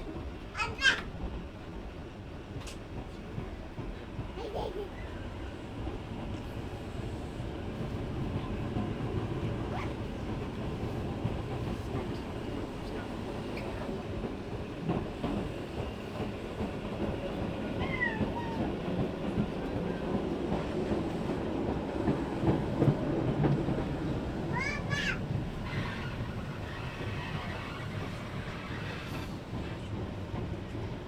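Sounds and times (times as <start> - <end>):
electric train rumbling: 0.0 - 31.0.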